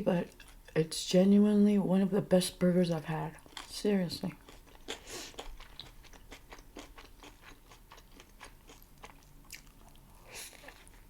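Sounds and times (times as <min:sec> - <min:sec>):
person chewing with wet mouth clicks: 0:04.4 - 0:10.0.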